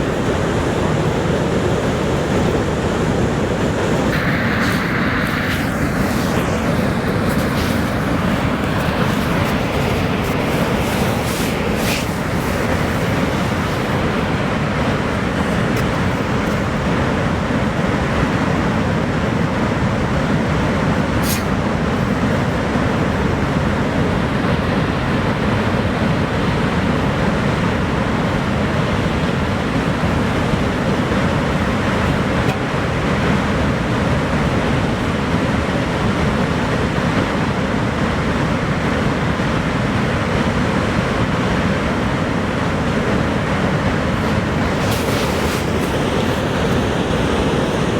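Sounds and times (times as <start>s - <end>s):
waterfall roaring: 0.0s - 18.5s, 42.6s - 47.9s.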